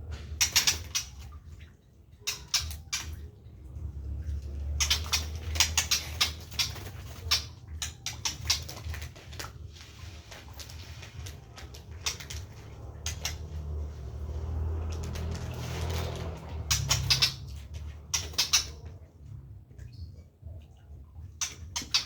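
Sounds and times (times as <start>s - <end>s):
low steady hum: 0.0s - 22.0s
scratching and scraping: 4.8s - 18.8s.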